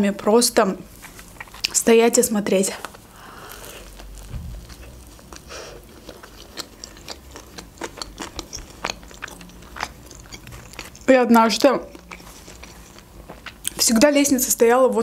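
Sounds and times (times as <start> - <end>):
chewing with wet mouth smacks: 1.0 - 1.8, 2.8 - 14.0.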